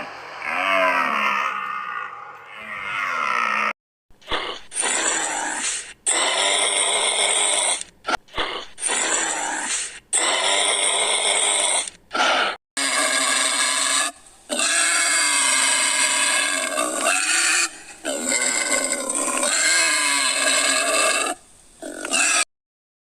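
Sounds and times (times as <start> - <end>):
loud animal calls: 0.0 - 3.8.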